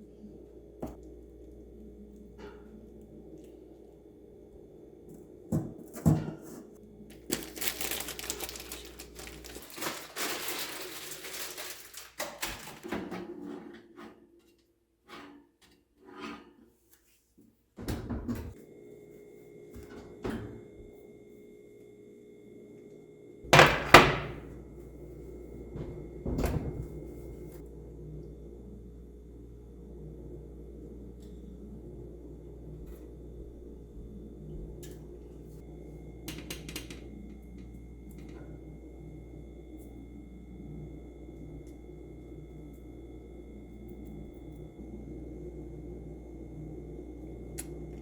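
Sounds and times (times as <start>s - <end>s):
bowls and pans being set down: 5.6s - 6.6s, 23.6s - 24.5s
scraping or rustling: 7.1s - 14.2s.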